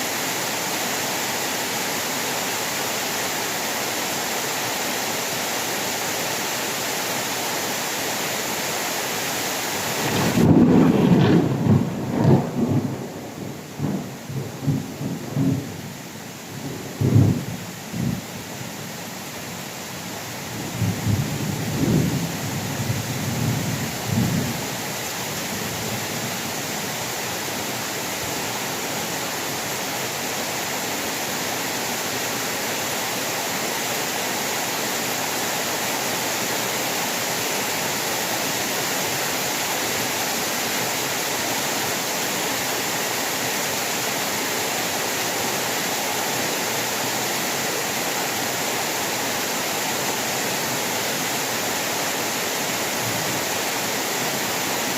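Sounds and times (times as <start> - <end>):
heavy rain hissing: 0.0 - 54.9
low rumble of thunder: 10.0 - 15.8, 16.9 - 18.2.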